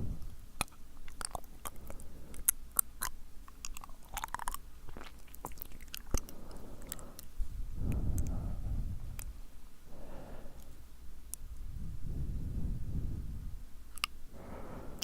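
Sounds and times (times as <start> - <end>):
wet lip smacks: 0.6 - 7.3
tongue clicks: 0.6 - 8.4, 13.9 - 14.2.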